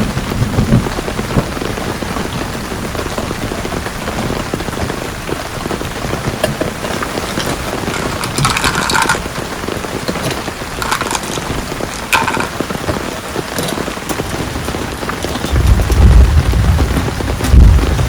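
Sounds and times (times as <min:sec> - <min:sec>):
heavy rain falling: 0:00.0 - 0:18.0
deep low rumble: 0:15.4 - 0:18.0.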